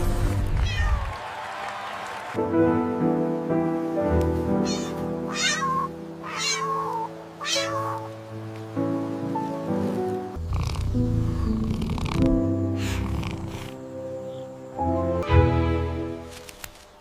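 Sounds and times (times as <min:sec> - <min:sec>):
cat meowing: 0:00.6 - 0:01.1, 0:04.6 - 0:08.2
background music with held notes: 0:02.4 - 0:17.0.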